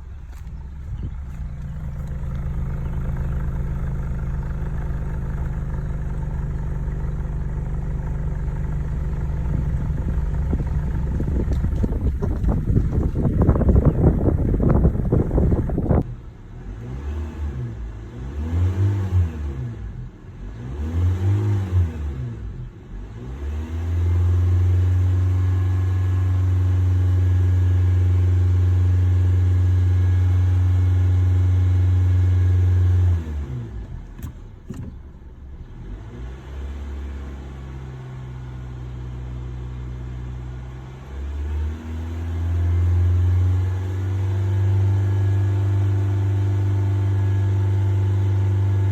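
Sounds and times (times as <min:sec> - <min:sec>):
car engine revving: 0:00.0 - 0:27.2.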